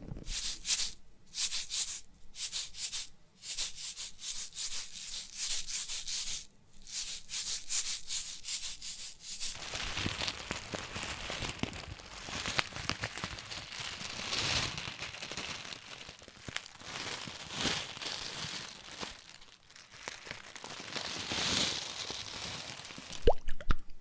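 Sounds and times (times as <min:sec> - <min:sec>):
crinkling and rustling: 0:00.0 - 0:00.6, 0:09.4 - 0:23.3.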